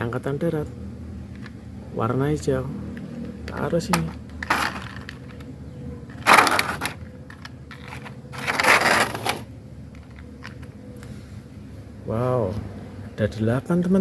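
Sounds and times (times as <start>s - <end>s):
toy cars clattering: 3.2s - 5.5s, 6.1s - 10.8s
plastic packaging rustling: 7.7s - 9.5s.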